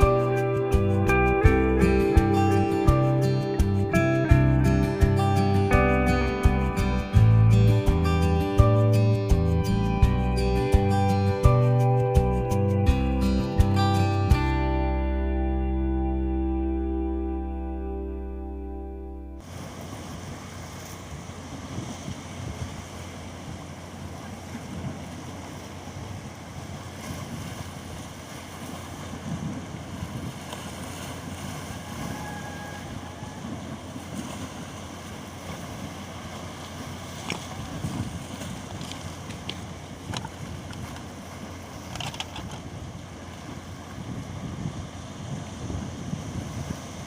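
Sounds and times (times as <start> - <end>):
sea waves washing in: 0.0 - 47.0
wind buffeting microphone: 19.4 - 47.0.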